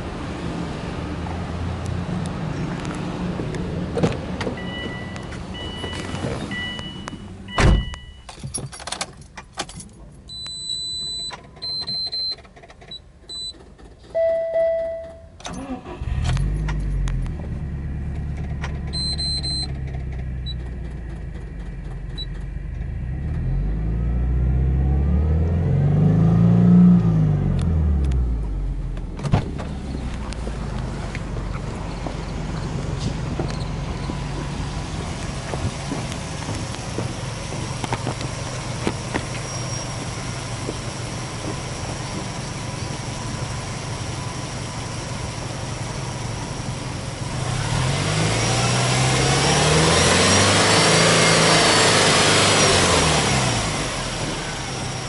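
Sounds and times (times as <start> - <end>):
car engine starting and idling: 0.0 - 55.0
electronic warning beeps: 4.6 - 8.3, 10.3 - 12.4, 19.0 - 19.7
sharp thump: 7.6 - 8.0, 29.2 - 29.7
brief chime: 14.2 - 15.3.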